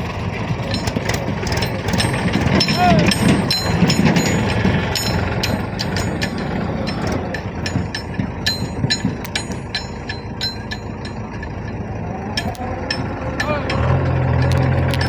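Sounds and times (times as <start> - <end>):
heavy diesel machinery running: 0.0 - 15.0
metallic clicks and clinks: 0.5 - 15.0.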